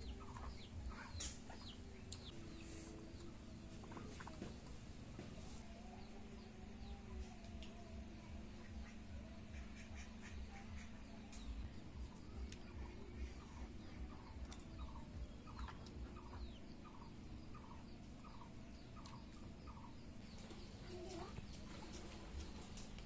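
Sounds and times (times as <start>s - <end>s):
low hum: 0.0s - 23.0s
bird calling: 8.3s - 22.8s.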